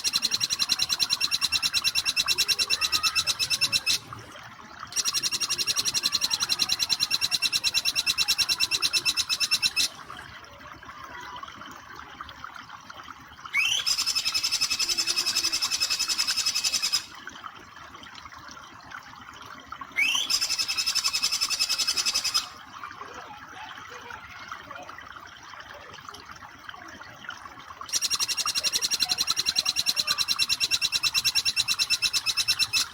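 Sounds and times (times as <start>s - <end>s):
bird rattling trill: 0.0s - 4.0s, 5.0s - 9.9s, 27.9s - 32.9s
running water: 0.0s - 32.9s.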